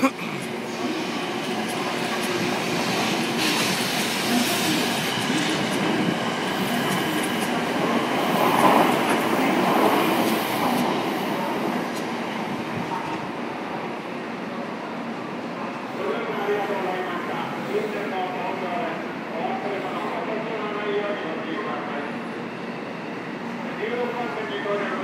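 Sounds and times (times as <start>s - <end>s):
train running noise: 0.0s - 14.1s.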